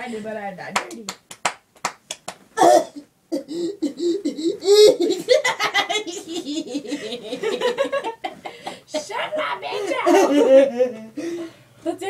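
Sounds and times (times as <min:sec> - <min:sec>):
girl laughing hard: 0:02.6 - 0:11.1.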